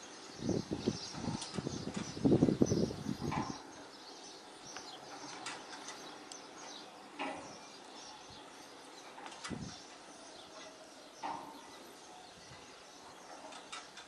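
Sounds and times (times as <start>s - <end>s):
wind gusting across microphone: 0.0s - 4.0s, 9.4s - 9.8s.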